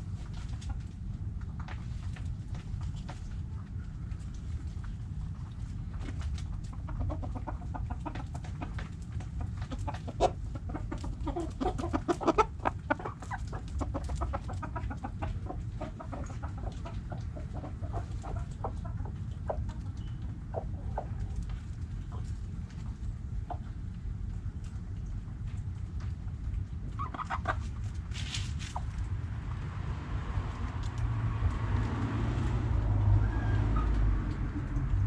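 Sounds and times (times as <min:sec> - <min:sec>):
hens clucking: 0:01.6 - 0:24.6, 0:26.8 - 0:29.6.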